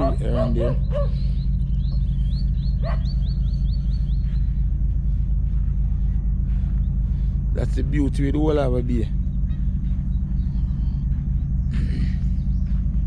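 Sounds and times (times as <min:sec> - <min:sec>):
bird chirping rapidly: 0:00.0 - 0:05.0
steady low rumble: 0:00.0 - 0:13.0.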